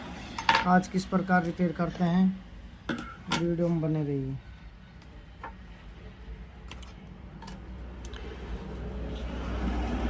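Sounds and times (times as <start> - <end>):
light clicks of small tools: 6.6 - 8.3.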